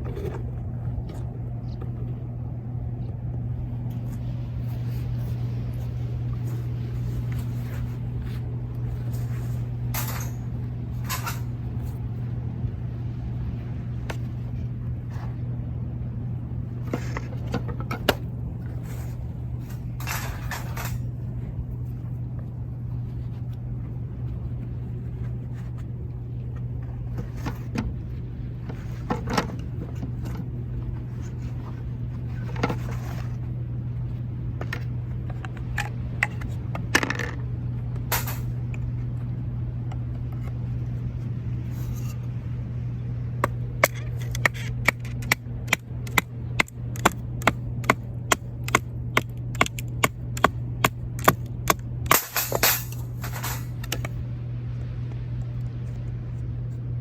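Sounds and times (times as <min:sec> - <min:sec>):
camp gear clicks and scrapes: 0:03.9 - 0:12.0, 0:28.6 - 0:33.5, 0:52.1 - 0:54.1.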